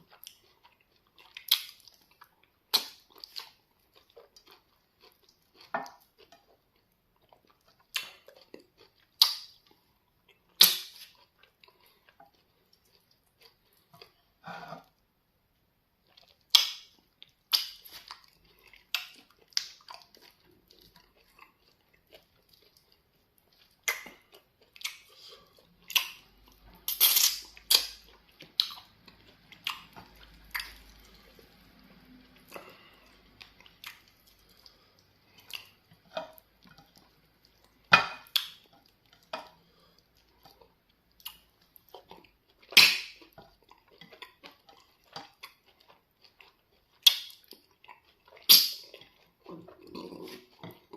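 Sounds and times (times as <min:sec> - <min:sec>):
wet chewing: 0:00.0 - 0:15.0, 0:16.0 - 0:50.9
lip smacks: 0:01.3 - 0:02.0, 0:02.7 - 0:03.6, 0:09.2 - 0:09.6, 0:10.6 - 0:11.9, 0:16.4 - 0:20.4, 0:23.8 - 0:28.9, 0:38.0 - 0:39.5, 0:47.0 - 0:47.6, 0:48.3 - 0:49.1
swallowing: 0:48.4 - 0:50.9.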